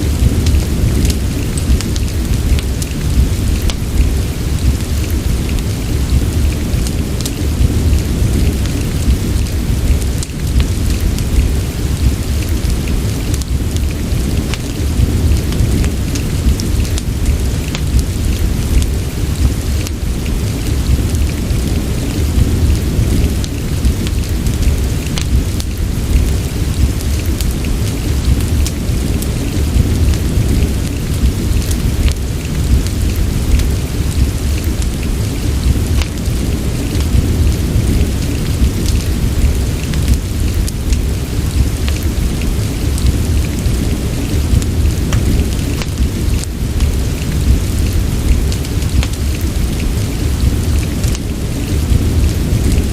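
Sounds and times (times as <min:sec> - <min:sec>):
fireplace crackling: 0:00.0 - 0:52.9
steady rain: 0:00.0 - 0:52.9.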